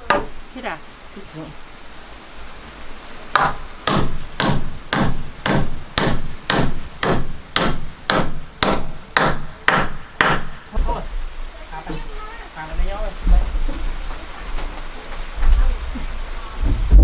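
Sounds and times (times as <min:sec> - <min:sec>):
hammer driving a nail: 0:00.0 - 0:00.4, 0:03.3 - 0:10.9.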